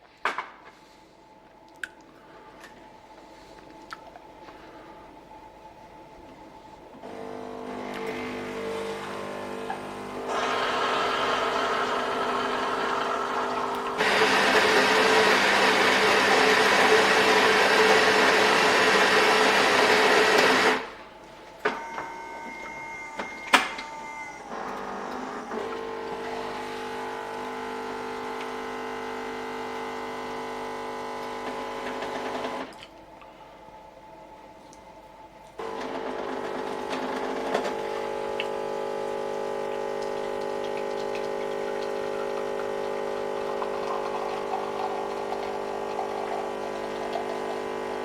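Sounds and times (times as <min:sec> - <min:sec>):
pump hum: 0:06.0 - 0:32.9, 0:35.6 - 0:48.0
coffee machine grinding: 0:07.0 - 0:20.9, 0:24.4 - 0:32.7, 0:35.6 - 0:48.0.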